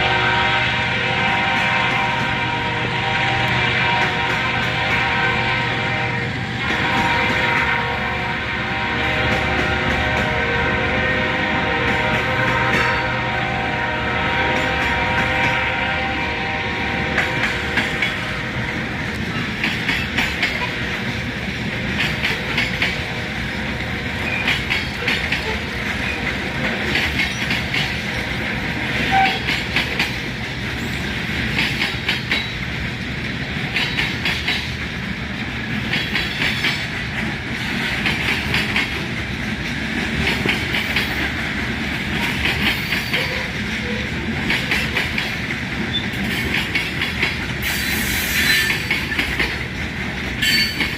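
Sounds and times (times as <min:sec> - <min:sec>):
freight train rumbling: 0:00.0 - 0:50.9
wheels clicking over rail joints: 0:17.1 - 0:50.9.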